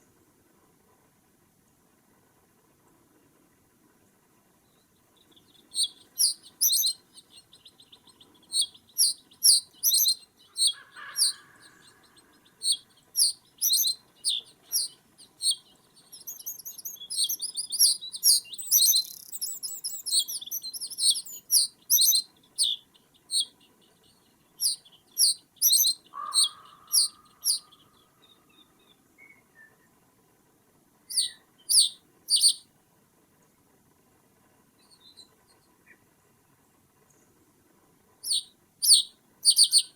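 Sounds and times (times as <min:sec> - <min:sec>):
small birds chirping: 0:04.6 - 0:30.0, 0:31.1 - 0:32.7, 0:34.7 - 0:36.1, 0:38.2 - 0:39.9
harsh low bird call: 0:08.5 - 0:15.6, 0:24.6 - 0:28.0.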